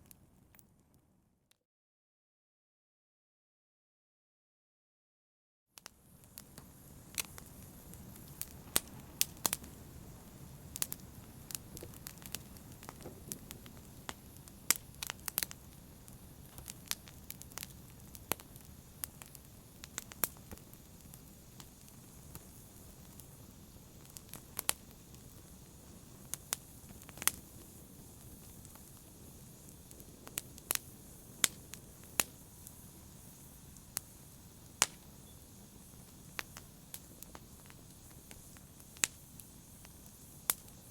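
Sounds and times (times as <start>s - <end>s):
wood fire crackling and popping: 5.8s - 40.9s.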